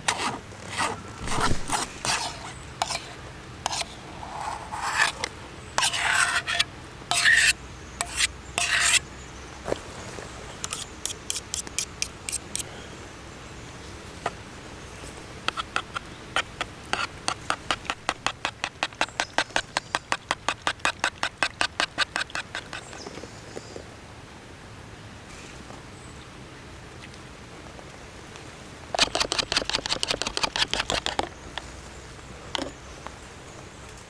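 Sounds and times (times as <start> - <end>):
loud scrape: 0.0 - 9.0.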